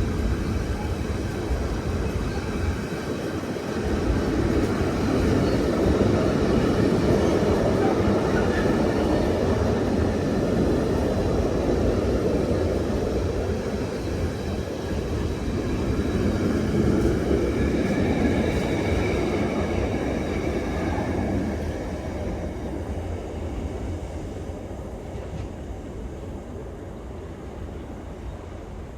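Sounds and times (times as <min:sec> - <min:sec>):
freight train wagons rattling: 0:00.0 - 0:23.1.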